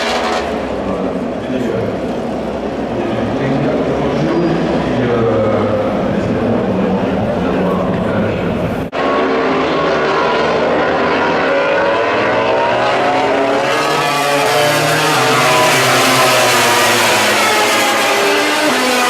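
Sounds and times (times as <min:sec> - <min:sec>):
motorcycle engine at high revs: 0:08.9 - 0:19.0.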